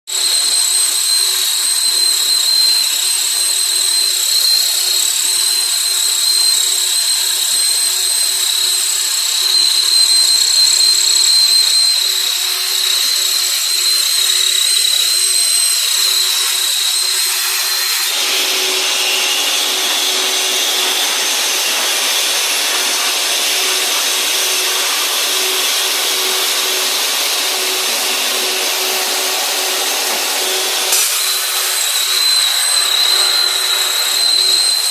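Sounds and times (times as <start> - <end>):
metal-cutting machine whine: 0.1 - 34.9
machine hum: 9.3 - 34.9.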